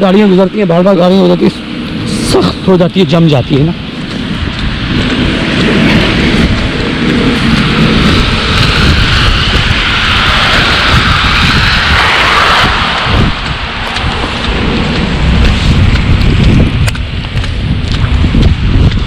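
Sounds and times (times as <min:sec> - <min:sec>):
tyres hissing on wet road: 0:00.0 - 0:19.0
wind buffeting microphone: 0:00.0 - 0:19.0.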